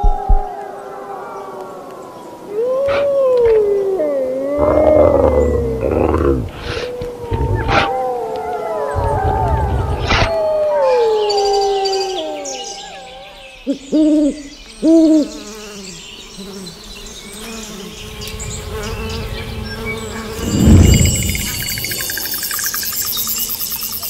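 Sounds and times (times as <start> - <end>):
wolves howling: 0.0 - 13.7
owl hoots: 2.5 - 4.9
crickets: 14.5 - 24.0
insect buzz: 14.6 - 24.0.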